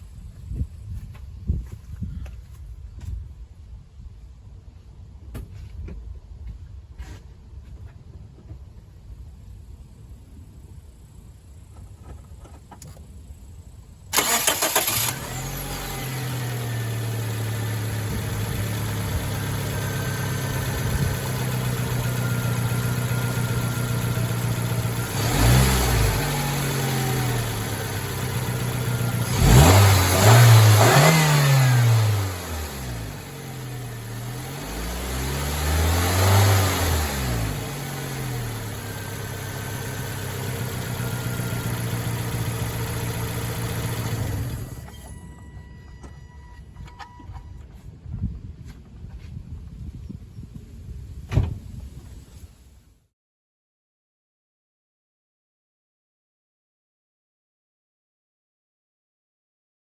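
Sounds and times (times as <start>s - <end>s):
car engine starting and revving: 14.1s - 45.1s.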